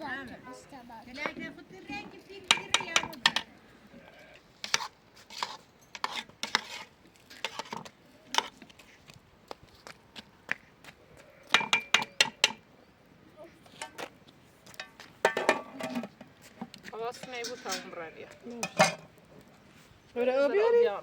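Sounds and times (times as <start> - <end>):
dishes and pots clinking: 2.4 - 3.5, 11.5 - 12.6, 14.7 - 16.2, 17.1 - 19.1.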